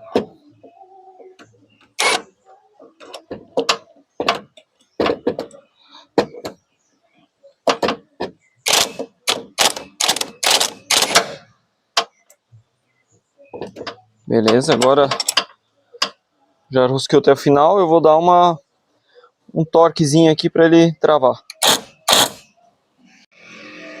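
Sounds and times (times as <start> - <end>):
impact wrench bursts: 2.0 - 2.2, 8.6 - 11.4, 21.5 - 22.5.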